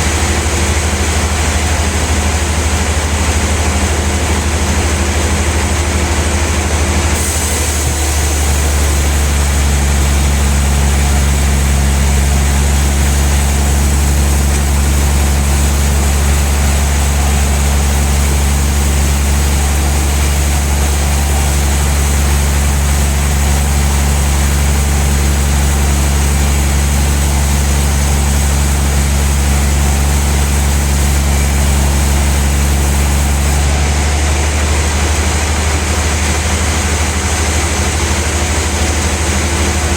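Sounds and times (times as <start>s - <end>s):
sawmill motor hum: 0.0s - 39.9s
saw blade cutting a log: 7.0s - 33.9s.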